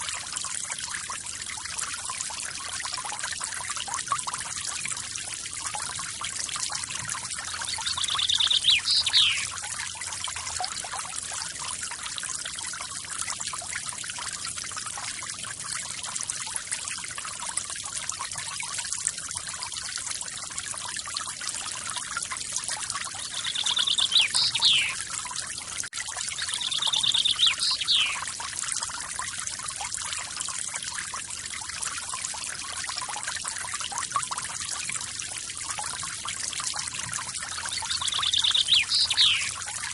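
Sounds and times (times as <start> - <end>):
small waterfall splashing: 0.0 - 39.9
bird trilling call: 7.7 - 9.5, 23.3 - 25.0, 26.4 - 28.2, 37.7 - 39.6.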